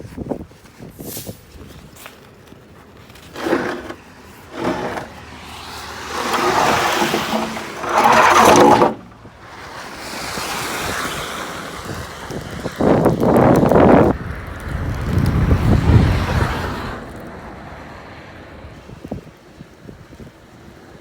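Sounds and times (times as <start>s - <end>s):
gusty wind on microphone: 6.2s - 17.2s.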